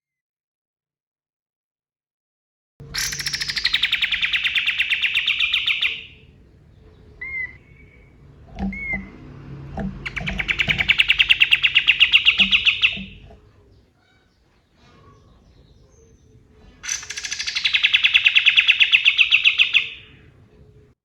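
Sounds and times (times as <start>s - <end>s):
bird rattling trill: 2.9s - 6.3s, 9.9s - 13.4s, 15.2s - 20.1s
short bird chirps: 3.0s - 6.2s, 15.0s - 20.0s.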